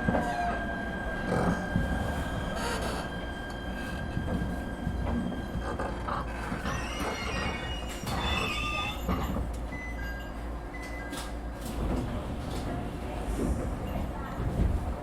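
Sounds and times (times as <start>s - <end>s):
train wheel squeal: 0.0s - 11.1s
low rumble under train floor: 0.0s - 15.0s.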